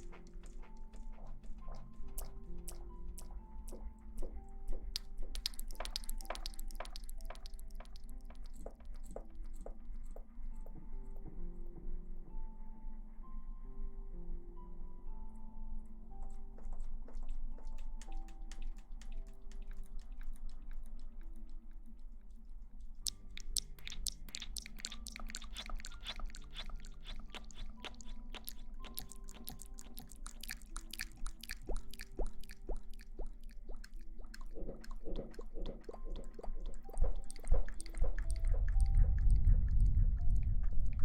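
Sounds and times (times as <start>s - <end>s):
faint slow background melody: 0.0s - 41.0s
low rumbling swish: 38.1s - 41.0s.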